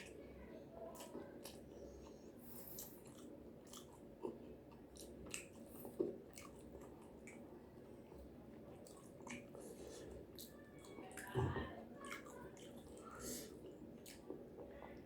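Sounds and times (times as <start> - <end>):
chewing and crunching food: 0.0 - 15.0.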